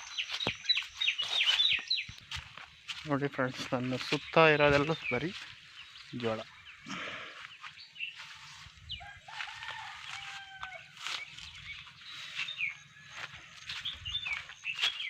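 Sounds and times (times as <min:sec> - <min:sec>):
high bird chirps: 0:00.0 - 0:03.1, 0:10.4 - 0:15.0
rooster crowing: 0:09.0 - 0:11.2.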